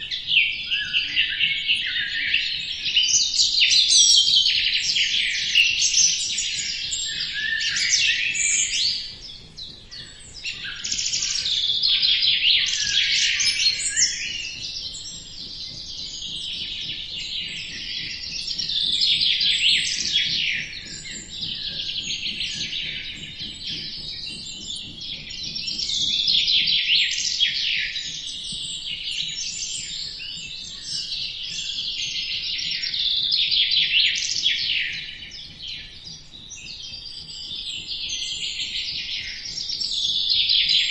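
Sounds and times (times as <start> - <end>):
small birds chirping and trilling: 0.0 - 40.9.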